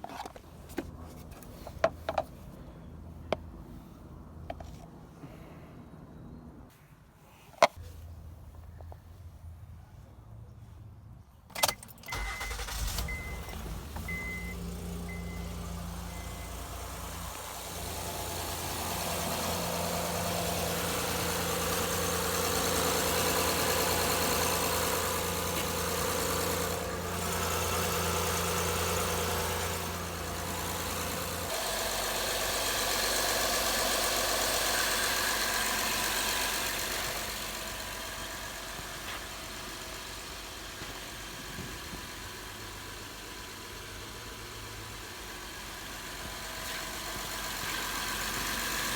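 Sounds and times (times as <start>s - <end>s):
car engine cranking and running: 11.5s - 48.9s.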